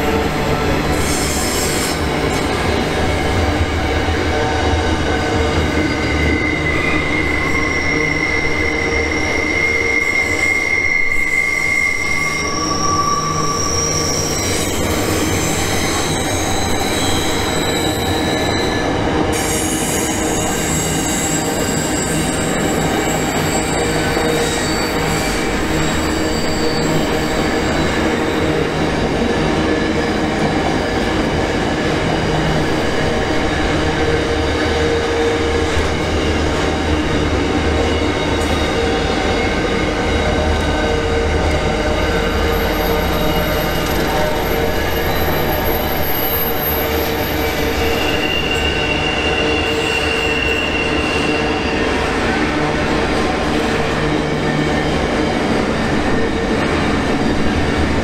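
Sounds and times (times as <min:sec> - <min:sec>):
train wheels rumbling on rail: 0:00.0 - 0:58.0
wheel squeal: 0:05.5 - 0:28.4, 0:42.2 - 0:52.3.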